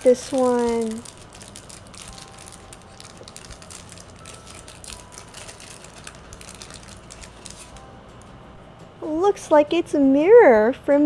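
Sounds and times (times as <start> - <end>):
toy packaging crinkling: 0.0 - 7.8.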